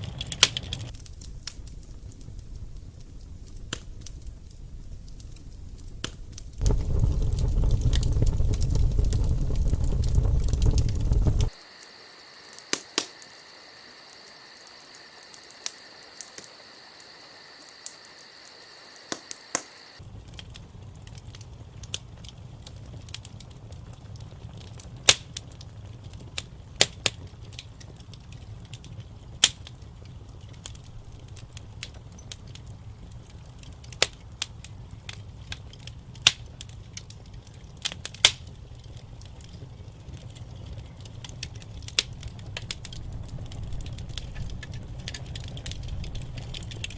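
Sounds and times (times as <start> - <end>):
low rumble of fire: 0.0 - 46.9
wood fire crackling and popping: 0.0 - 46.9
faint high whine: 6.6 - 20.0.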